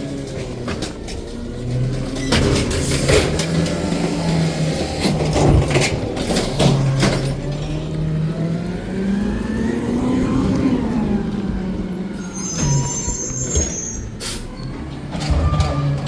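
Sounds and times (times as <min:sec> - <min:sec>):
diesel engine revving: 0:00.0 - 0:16.0
high squeal: 0:12.1 - 0:16.0.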